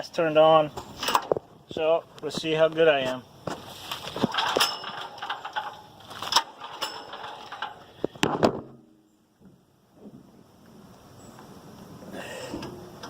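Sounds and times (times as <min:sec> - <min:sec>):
engine cranking: 0:03.5 - 0:08.2
generator recoil starter rasping: 0:03.5 - 0:08.5.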